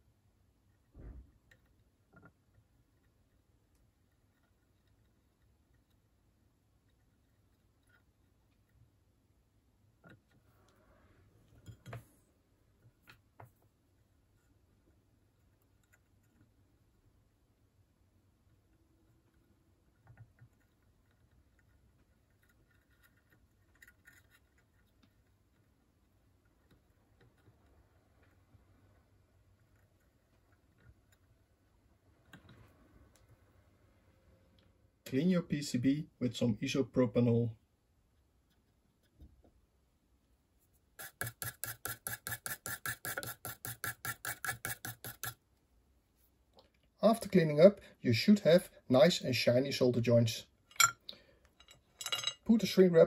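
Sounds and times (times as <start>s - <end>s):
brush scrubbing circuit board: 40.7s - 45.4s.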